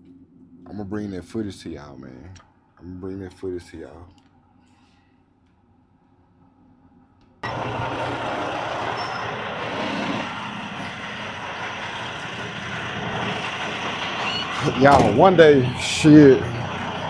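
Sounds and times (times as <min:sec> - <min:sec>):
truck engine running: 0:07.4 - 0:17.0.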